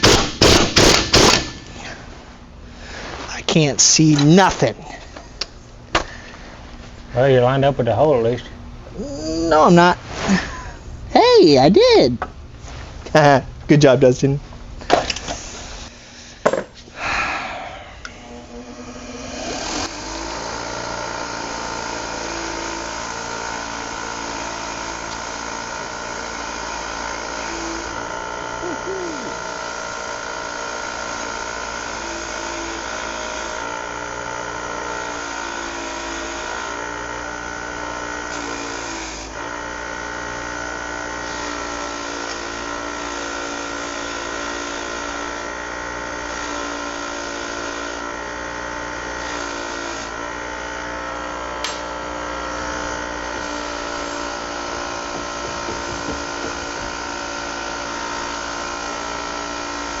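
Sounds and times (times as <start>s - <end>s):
motor whine: 14.6s - 60.0s
sharp click: 51.6s - 51.9s.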